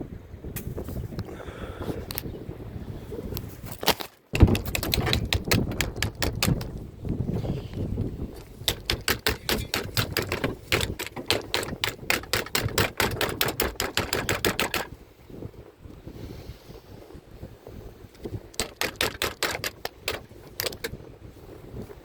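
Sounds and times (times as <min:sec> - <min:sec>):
rapid sharp clicks: 0:04.4 - 0:06.8, 0:08.4 - 0:15.0, 0:18.5 - 0:20.9.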